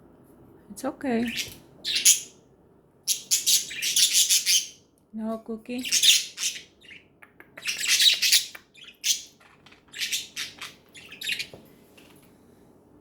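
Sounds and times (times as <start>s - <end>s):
budgerigars chirping: 1.3s - 2.4s, 3.1s - 4.8s, 5.8s - 11.5s.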